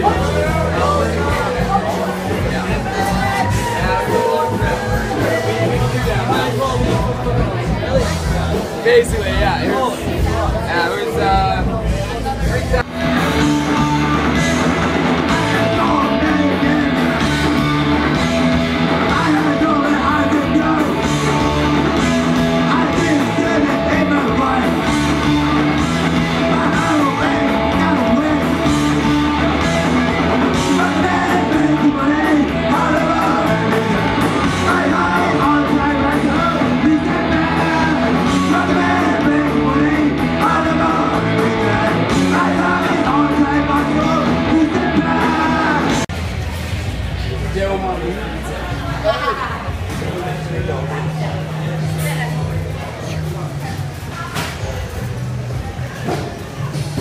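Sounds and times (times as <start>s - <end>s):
steady drum beat: 0.0s - 47.9s
guitar: 0.0s - 57.0s
person yelling singing: 13.3s - 17.8s, 18.9s - 46.1s.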